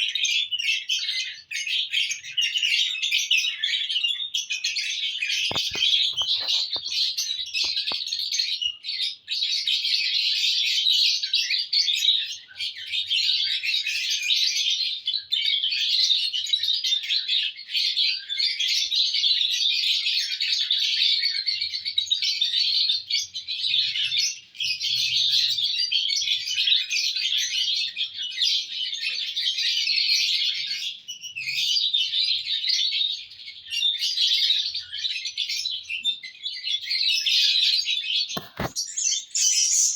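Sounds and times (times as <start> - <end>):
lovebirds chirping: 5.0 - 8.8, 36.8 - 39.9.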